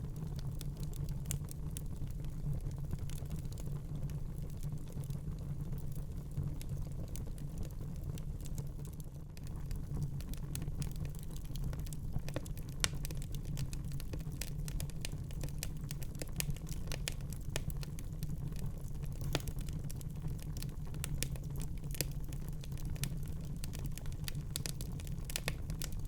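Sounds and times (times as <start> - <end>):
fireplace fire crackling: 0.0 - 26.0.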